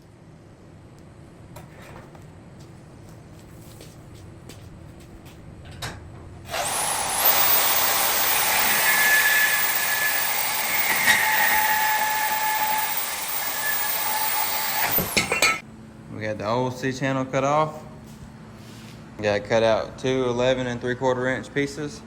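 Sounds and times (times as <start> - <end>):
angle grinder cutting steel: 6.5 - 15.6.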